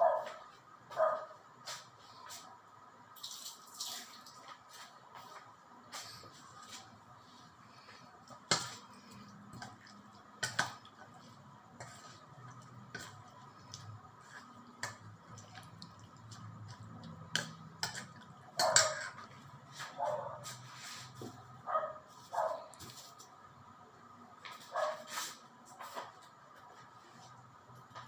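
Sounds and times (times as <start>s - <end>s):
dishes and utensils clinking: 17.4s - 19.3s.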